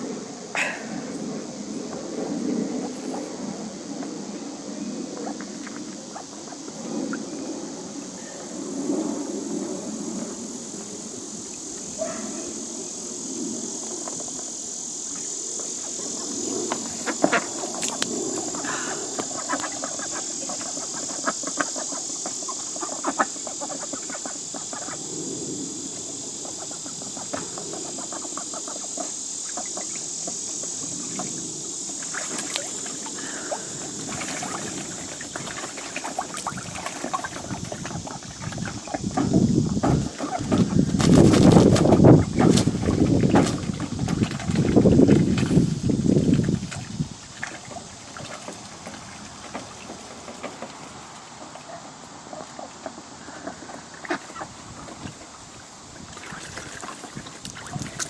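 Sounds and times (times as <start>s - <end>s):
high-pitched hiss: 0.0s - 49.4s
ducks quacking: 15.8s - 25.0s, 51.7s - 55.2s.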